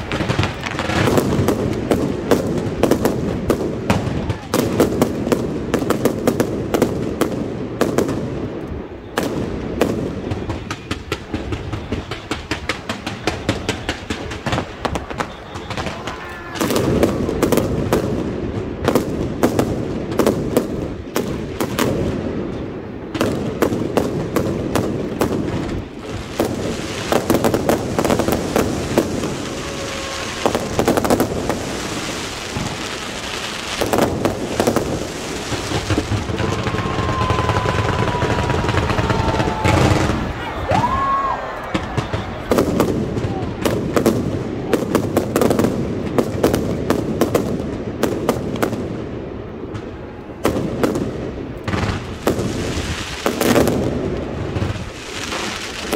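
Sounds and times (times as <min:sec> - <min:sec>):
fireworks cracks and bangs: 0:00.0 - 0:55.9
high fireworks crackle: 0:00.0 - 0:55.9.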